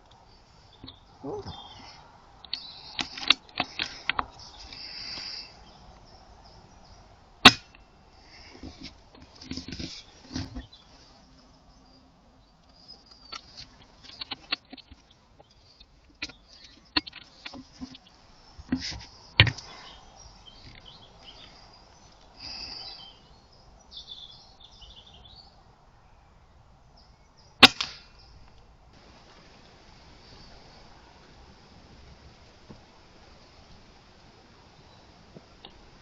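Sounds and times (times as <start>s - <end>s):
air rifle firing: 27.6s - 28.1s.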